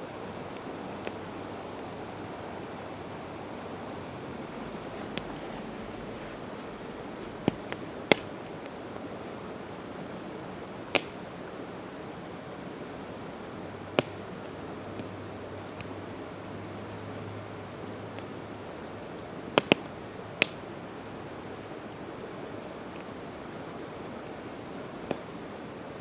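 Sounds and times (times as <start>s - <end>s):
campfire hissing: 0.2s - 26.0s
fire popping: 15.7s - 23.4s
cricket chirping: 16.0s - 23.8s.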